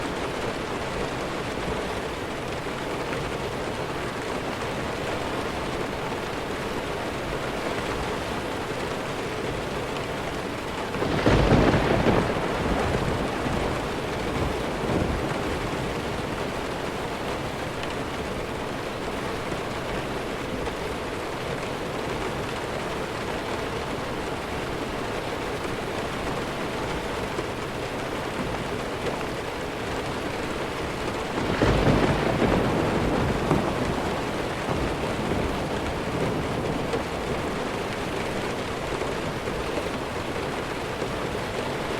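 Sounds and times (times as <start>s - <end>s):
steady rainfall: 0.0s - 41.9s
thunder clap and rumble: 10.8s - 19.2s, 30.8s - 41.3s.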